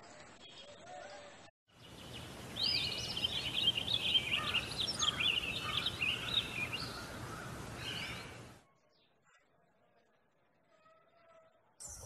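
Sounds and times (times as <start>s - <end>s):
small birds chirping: 1.7s - 9.2s.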